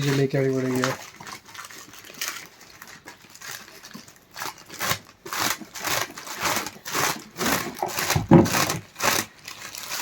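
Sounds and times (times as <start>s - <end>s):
packaging rustling: 0.0s - 10.0s
thump: 8.1s - 8.7s.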